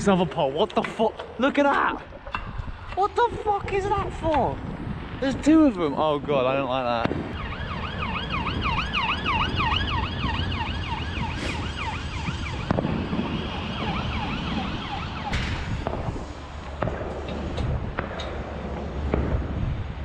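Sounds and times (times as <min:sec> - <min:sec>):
distant firework cracks: 0:07.0 - 0:07.4, 0:12.5 - 0:14.0, 0:15.3 - 0:19.6
siren yelping: 0:07.4 - 0:15.4.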